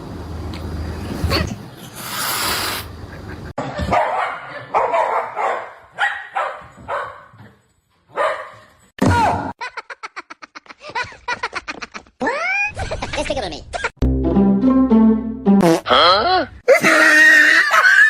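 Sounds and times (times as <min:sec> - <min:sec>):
dog barking: 0:03.8 - 0:07.4, 0:08.1 - 0:08.7.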